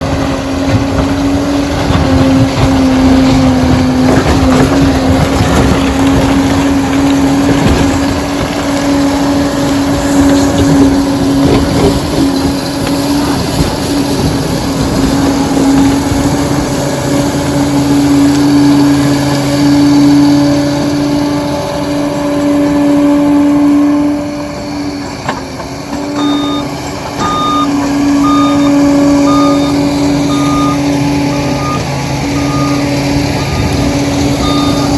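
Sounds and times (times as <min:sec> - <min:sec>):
dozer diesel engine whining: 0:00.0 - 0:34.9
reversing alarm beeping: 0:23.5 - 0:34.9.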